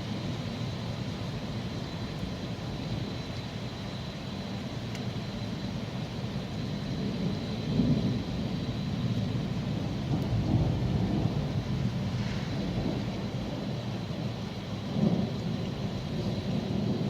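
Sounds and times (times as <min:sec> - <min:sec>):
steady rain: 0:00.0 - 0:17.0
rolling thunder rumbling: 0:06.8 - 0:17.0.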